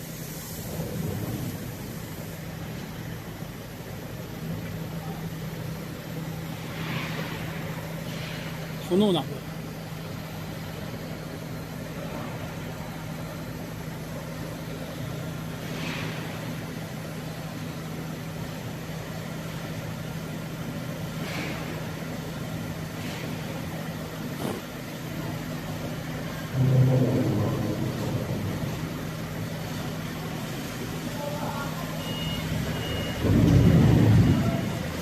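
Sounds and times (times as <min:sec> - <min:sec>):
machine humming: 0:23.8 - 0:35.0
loud low sound: 0:26.5 - 0:29.4.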